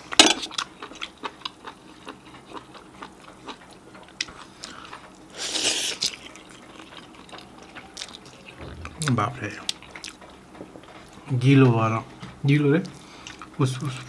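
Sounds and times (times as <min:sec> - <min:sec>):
wet chewing: 0:00.5 - 0:08.7.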